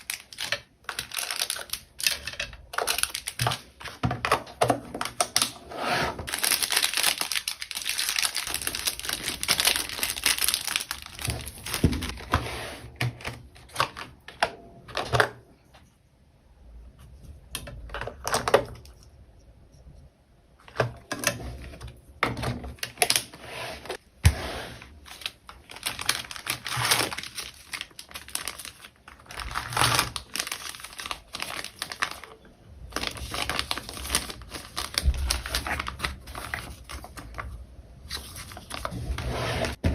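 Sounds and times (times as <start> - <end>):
plastic packaging crinkling: 0.0 - 5.6, 6.3 - 12.3, 24.9 - 39.8.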